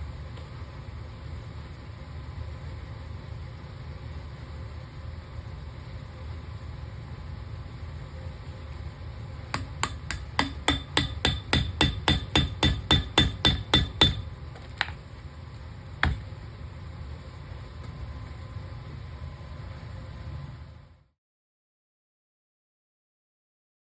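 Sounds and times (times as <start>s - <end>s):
hammer striking metal: 9.6s - 14.3s, 16.0s - 16.3s.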